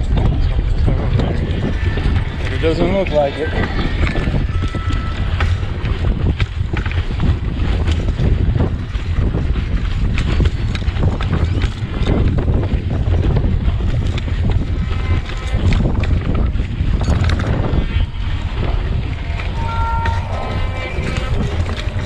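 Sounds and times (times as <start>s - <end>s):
wind buffeting microphone: 0.0s - 22.0s
knocks and rattles: 5.2s - 22.0s.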